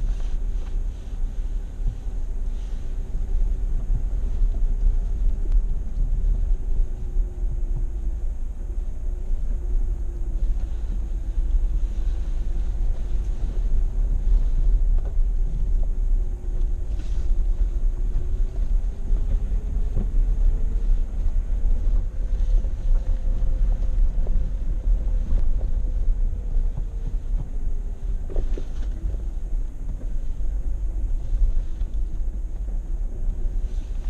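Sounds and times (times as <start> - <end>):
vehicle engine rumbling: 0.0 - 34.0.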